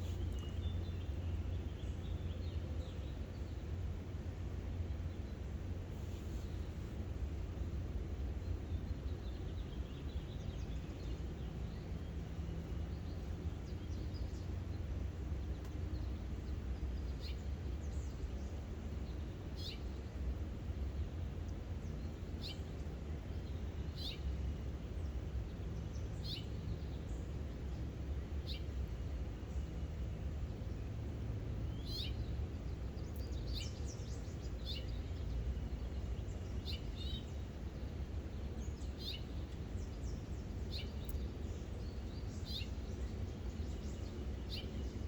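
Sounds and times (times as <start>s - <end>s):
low background rumble: 0.0s - 45.0s
bird chirping: 31.7s - 45.0s.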